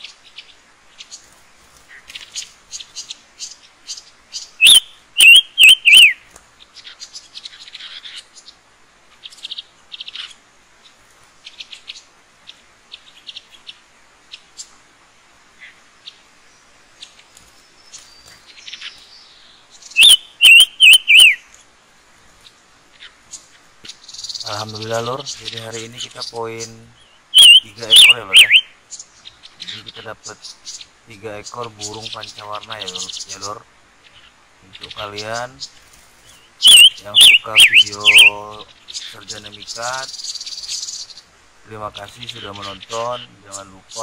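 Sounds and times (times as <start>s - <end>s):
small birds chirping softly: 0.0s - 44.0s
loud sharp downward bird call: 4.6s - 6.2s, 20.0s - 21.5s, 27.2s - 28.8s, 36.6s - 38.4s.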